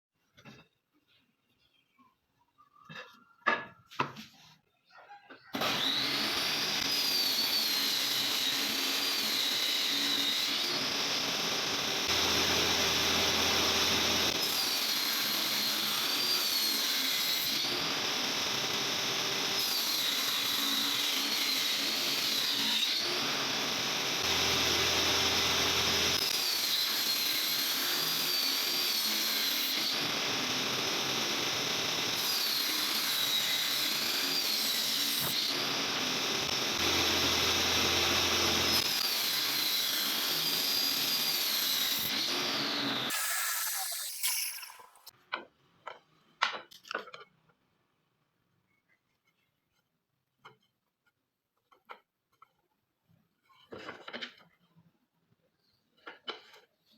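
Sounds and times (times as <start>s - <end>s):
table saw whining: 5.6s - 45.1s.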